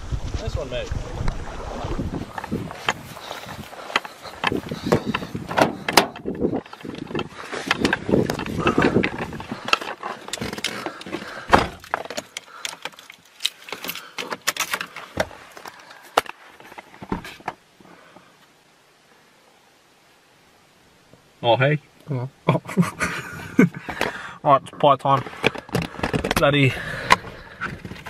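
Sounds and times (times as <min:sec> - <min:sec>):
rustling of gear being handled: 0:02.2 - 0:17.4
clicks and knocks of gear: 0:02.3 - 0:17.6, 0:25.0 - 0:28.0.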